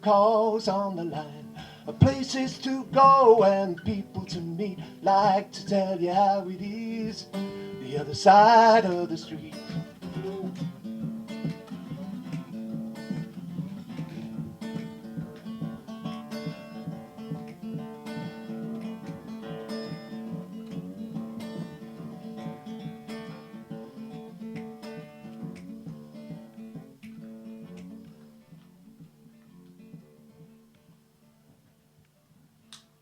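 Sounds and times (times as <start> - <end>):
acoustic guitar strumming: 0.0 - 31.5.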